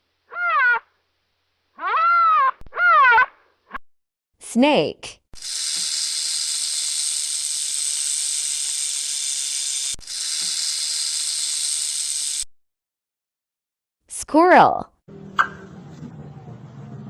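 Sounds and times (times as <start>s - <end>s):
snake hissing: 5.4s - 12.4s.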